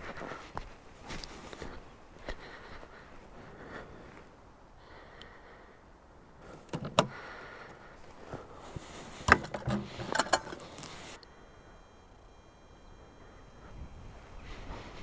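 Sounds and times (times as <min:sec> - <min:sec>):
faint high-pitched whine: 0:03.8 - 0:15.0
knocks and clatters of gear: 0:06.5 - 0:07.1, 0:08.8 - 0:11.2.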